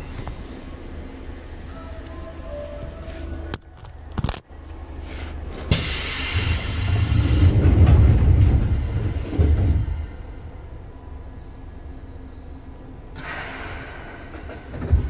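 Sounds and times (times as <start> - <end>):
low train rumble: 0.0 - 15.0
hiss of air: 5.7 - 7.9.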